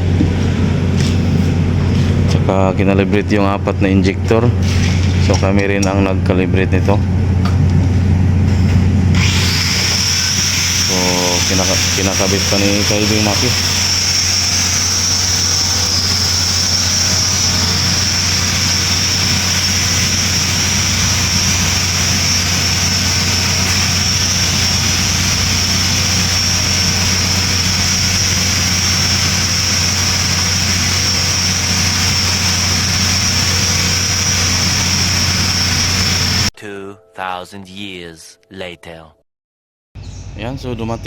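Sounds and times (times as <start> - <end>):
mechanical drone with whine: 5.2 - 36.5.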